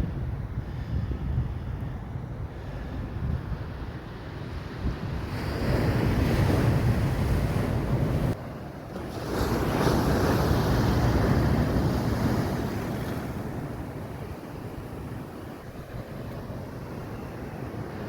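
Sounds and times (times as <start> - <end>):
wind rumbling on microphone: 0.0 - 18.0
ocean surf breaking: 5.2 - 18.0.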